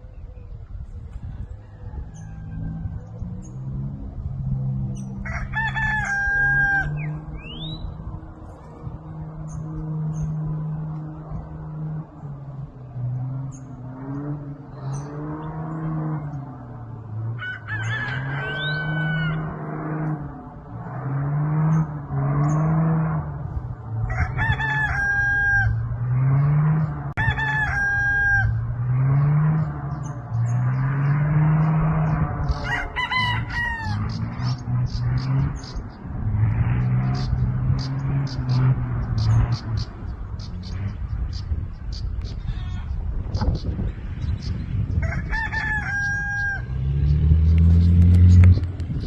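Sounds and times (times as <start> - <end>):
rooster crowing: 1.2 - 3.9, 5.1 - 7.4, 17.2 - 19.8, 24.1 - 26.2, 27.2 - 29.0, 32.4 - 34.3, 45.0 - 47.0.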